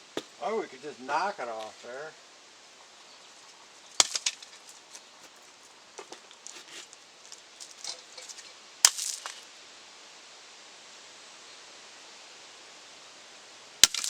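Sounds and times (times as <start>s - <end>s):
brick debris clattering: 4.0s - 5.4s, 6.0s - 9.4s.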